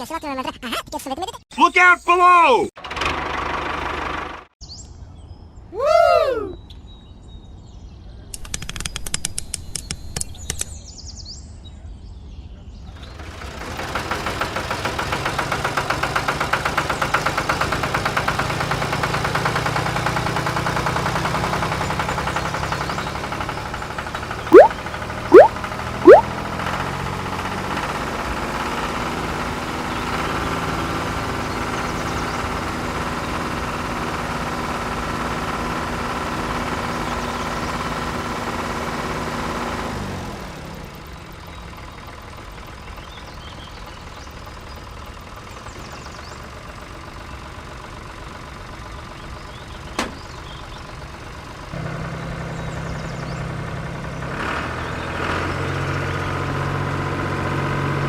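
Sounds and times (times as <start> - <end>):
small tractor engine idling: 13.0 - 25.2, 40.8 - 54.2.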